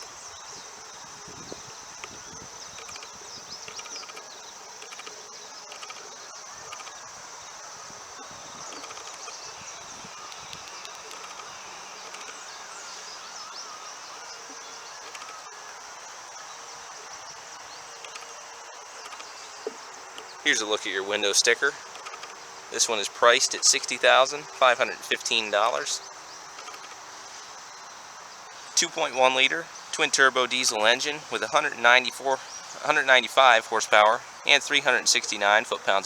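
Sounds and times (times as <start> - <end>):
insect chorus chirring: 0.0 - 36.0
faint ticks: 1.3 - 25.4, 26.0 - 28.8.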